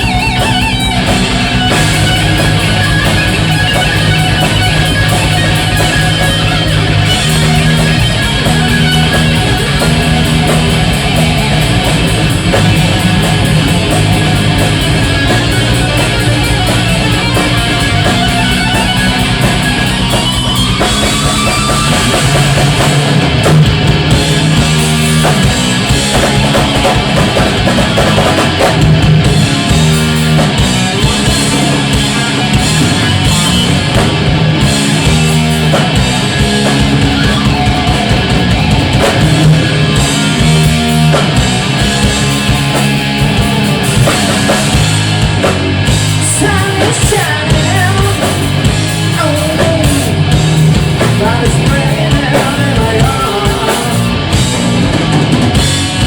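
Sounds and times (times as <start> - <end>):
heavy metal band playing: 0.0 - 56.0.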